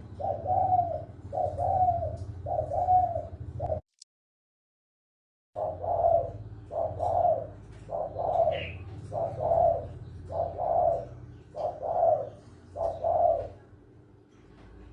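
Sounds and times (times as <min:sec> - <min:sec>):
dove cooing: 0:00.0 - 0:03.8, 0:05.6 - 0:13.9
steady low hum: 0:00.0 - 0:03.8, 0:05.6 - 0:14.9.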